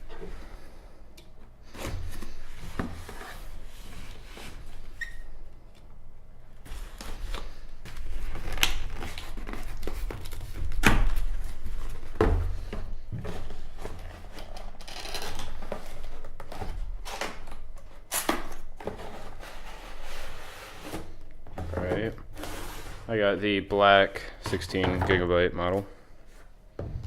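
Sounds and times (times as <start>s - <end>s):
box and wrapping being handled: 6.6s - 23.0s.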